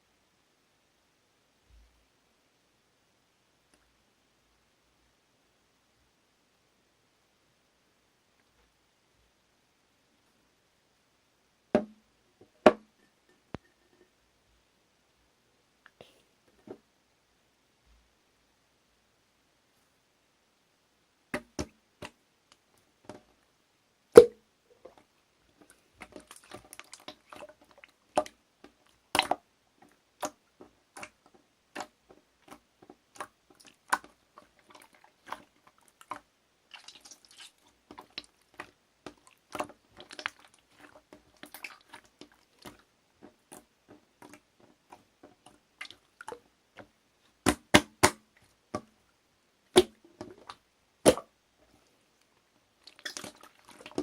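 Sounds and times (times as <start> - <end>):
slime squishing and popping: 49.8 - 51.3, 52.8 - 54.0.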